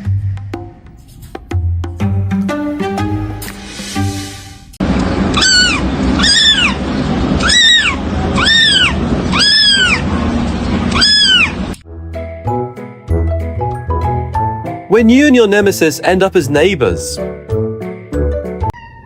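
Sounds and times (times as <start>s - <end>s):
music: 0.0s - 4.8s, 11.8s - 18.8s
cat meowing: 5.3s - 6.8s, 7.4s - 10.1s, 10.9s - 11.8s, 18.7s - 19.0s.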